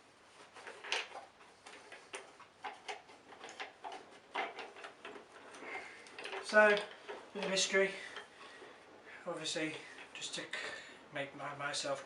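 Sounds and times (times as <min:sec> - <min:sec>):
light clicks and knocks of handling parts: 0:00.3 - 0:12.0.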